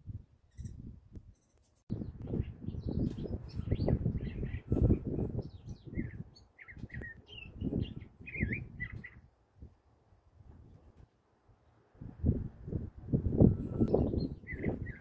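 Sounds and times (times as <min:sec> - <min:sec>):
bird chirping and warbling: 0:00.5 - 0:09.2, 0:13.5 - 0:15.0
low rumble on microphone: 0:12.0 - 0:15.0.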